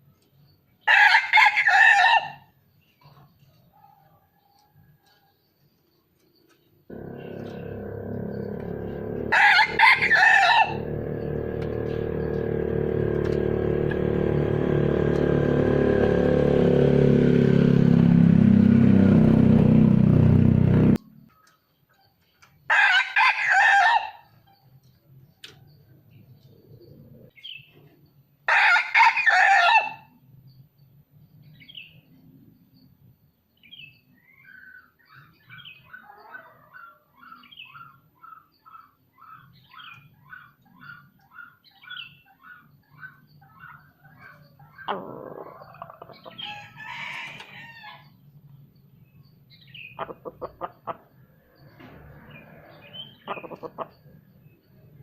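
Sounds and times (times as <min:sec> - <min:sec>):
rooster crowing: 0:00.9 - 0:02.5, 0:06.9 - 0:18.9, 0:22.7 - 0:24.2, 0:28.5 - 0:30.1, 0:44.8 - 0:48.2
small birds chirping: 0:02.4 - 0:18.7, 0:24.1 - 0:28.5, 0:30.2 - 0:55.0
steady droning: 0:06.9 - 0:21.0.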